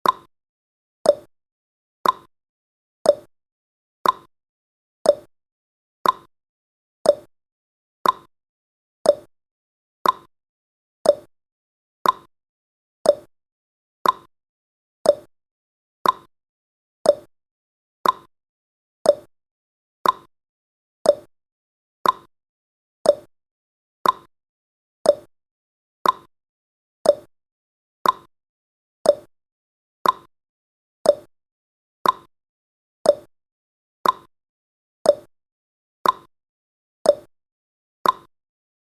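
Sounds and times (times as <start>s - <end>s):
clock ticking: 2.0s - 2.3s, 4.0s - 4.3s, 6.0s - 6.3s, 8.0s - 8.3s, 10.0s - 10.3s, 12.0s - 12.3s, 13.1s - 13.3s, 14.0s - 14.3s, 15.1s - 15.3s, 16.0s - 16.3s, 18.0s - 18.3s, 20.0s - 20.3s, 22.0s - 22.3s, 24.0s - 24.3s, 25.1s - 25.3s, 26.0s - 26.3s, 27.1s - 27.3s, 28.0s - 28.3s, 29.1s - 29.3s, 30.0s - 30.3s, 32.0s - 32.3s, 33.1s - 33.3s, 34.0s - 34.3s, 36.0s - 36.3s, 38.0s - 38.3s.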